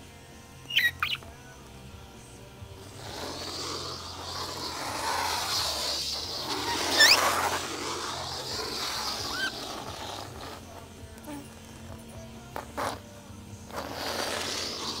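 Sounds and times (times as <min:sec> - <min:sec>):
budgerigar chirps: 0:00.7 - 0:01.2
steady rushing noise: 0:02.6 - 0:11.2.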